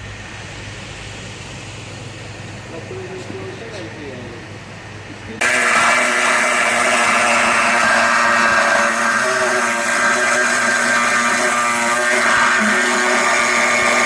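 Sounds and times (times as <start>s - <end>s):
power tool whining on sheet metal: 5.4s - 14.0s.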